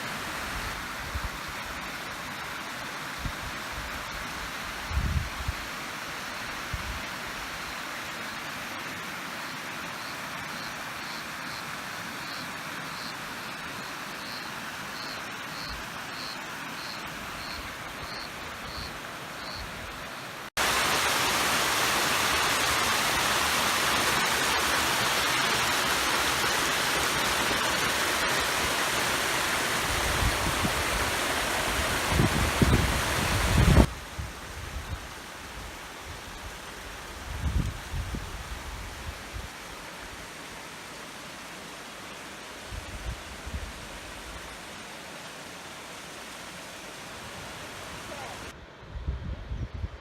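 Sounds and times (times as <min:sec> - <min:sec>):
waterfall rushing: 0:00.0 - 0:04.9, 0:14.5 - 0:37.3, 0:37.9 - 0:48.6.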